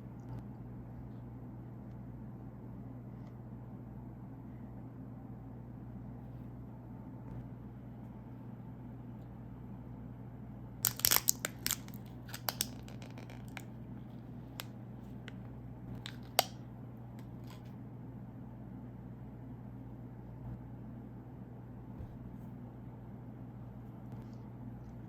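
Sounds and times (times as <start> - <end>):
snack wrapper crinkling: 10.8 - 13.7, 16.0 - 16.6.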